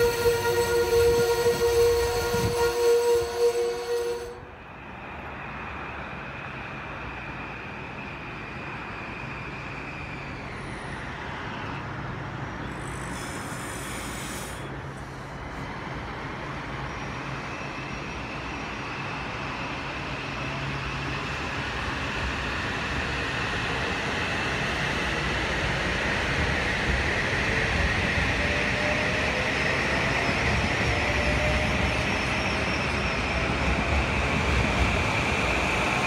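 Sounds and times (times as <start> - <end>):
background traffic noise: 0.0 - 32.2
train rumble: 0.0 - 36.0
brief high hiss: 12.7 - 14.7.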